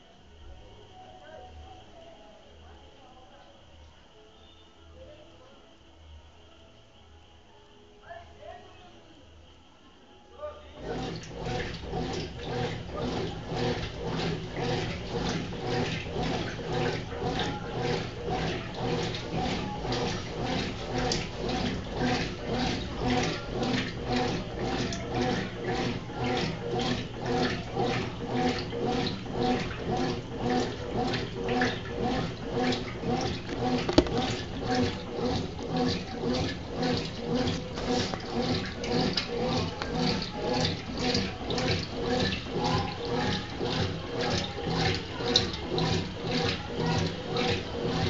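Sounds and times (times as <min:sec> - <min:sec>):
washing machine swishing: 0:10.8 - 0:48.0
washing machine click: 0:33.2 - 0:35.0.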